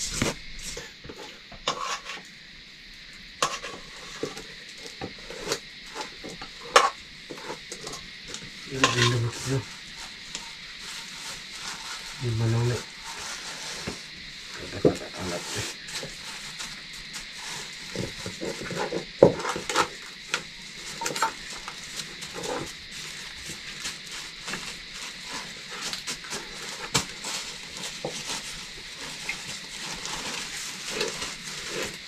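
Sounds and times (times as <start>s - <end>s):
steady hiss: 0.0s - 32.0s
pots and utensils clinking: 5.1s - 11.0s, 17.9s - 23.6s.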